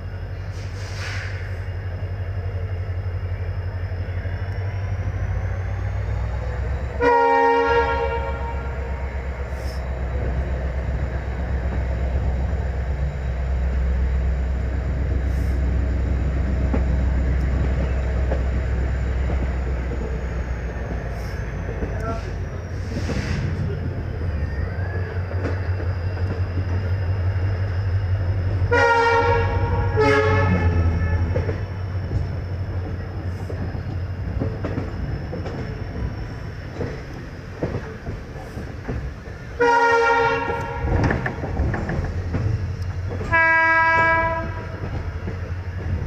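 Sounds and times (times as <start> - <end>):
train wheels rumbling on track: 0.0 - 46.0
train horn: 7.0 - 9.1, 28.6 - 31.6, 39.6 - 41.2, 43.2 - 44.8.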